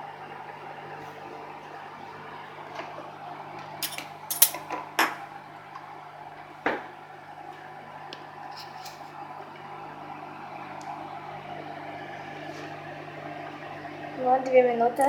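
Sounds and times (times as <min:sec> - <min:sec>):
microwave oven humming: 0:00.0 - 0:15.0
dishes clinking: 0:03.8 - 0:05.2.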